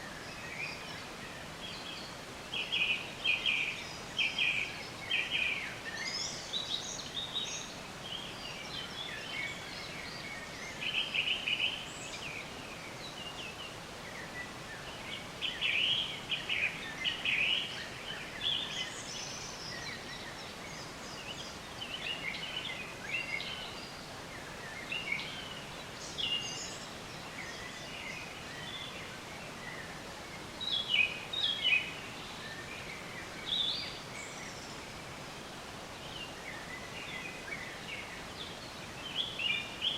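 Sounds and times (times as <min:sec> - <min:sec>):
songbirds chirping and trilling: 0:00.0 - 0:39.9
steady background hiss: 0:00.0 - 0:39.9.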